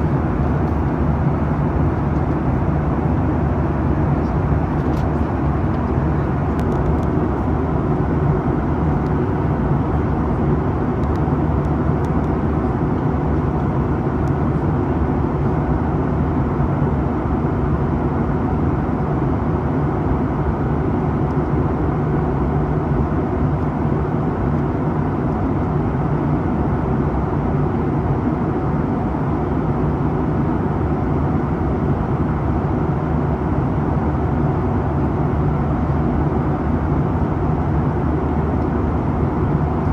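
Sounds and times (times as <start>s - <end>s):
airplane cabin engine drone: 0.0s - 39.9s.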